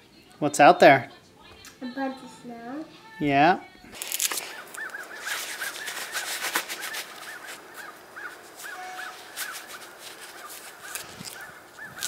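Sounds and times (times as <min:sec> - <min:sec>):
glove rustling: 0:03.9 - 0:12.0
birds rising and falling calls: 0:04.1 - 0:12.0.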